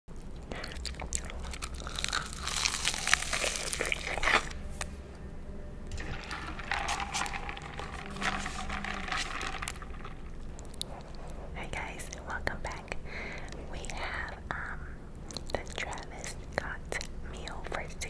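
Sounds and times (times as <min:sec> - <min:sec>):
wet sticky chewing: 0:00.1 - 0:04.9, 0:09.9 - 0:11.5, 0:15.1 - 0:17.1
crunching chicken nuggets: 0:00.2 - 0:04.5.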